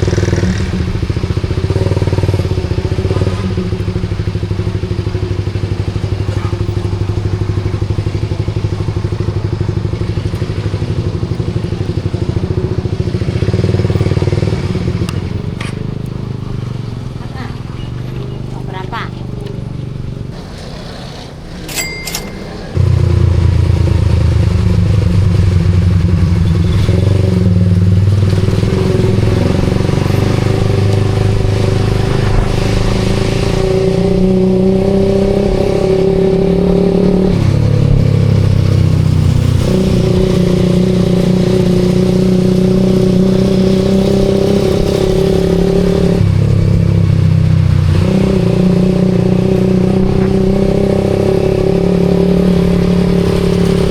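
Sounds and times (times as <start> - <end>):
motorcycle engine running: 0.0 - 53.9
short high beep: 21.7 - 22.8.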